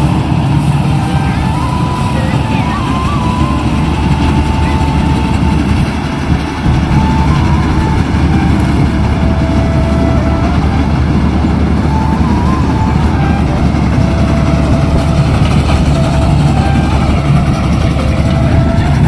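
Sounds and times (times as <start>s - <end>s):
combine harvester engine rumble: 0.0s - 19.0s.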